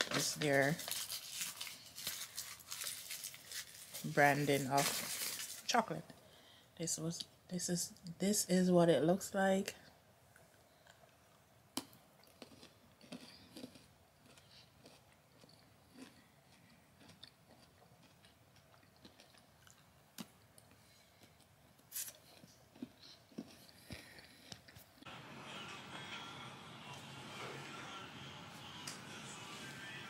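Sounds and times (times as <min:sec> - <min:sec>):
chewing crispy chocolate bar: 0:00.6 - 0:04.2, 0:11.8 - 0:25.0.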